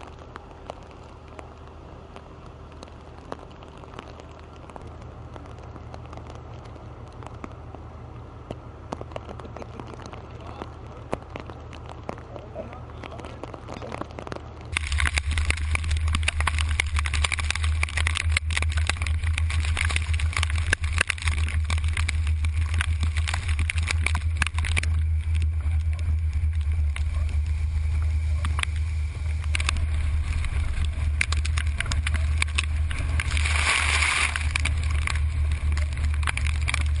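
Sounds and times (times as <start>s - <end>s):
hurricane wind buffeting microphone: 0.0s - 37.0s.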